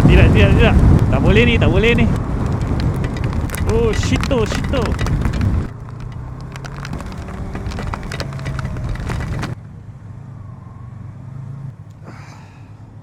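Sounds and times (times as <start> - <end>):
motorcycle engine running: 0.0 - 9.6
wind noise: 0.0 - 9.6
sharp ticks: 0.2 - 9.6.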